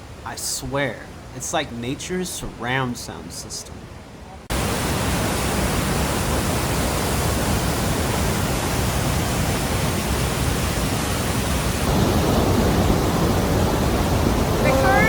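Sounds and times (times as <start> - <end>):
waterfall roaring: 4.5 - 15.0.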